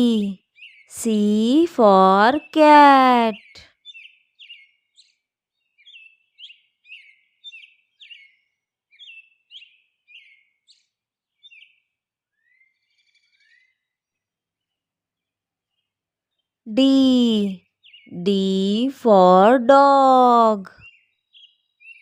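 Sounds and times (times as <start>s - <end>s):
faint bird chirping: 0.0s - 22.0s.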